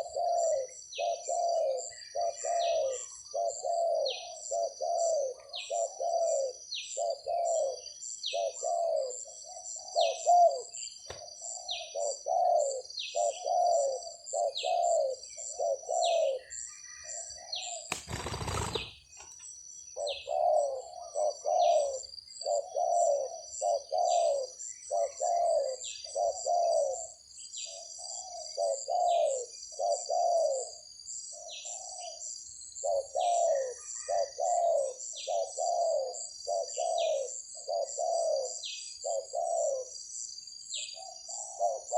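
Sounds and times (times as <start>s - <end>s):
doves cooing: 0.0s - 10.8s, 11.4s - 16.5s, 17.9s - 19.1s, 20.0s - 27.2s, 32.8s - 39.9s, 41.0s - 41.9s
loud rustle: 17.9s - 19.1s.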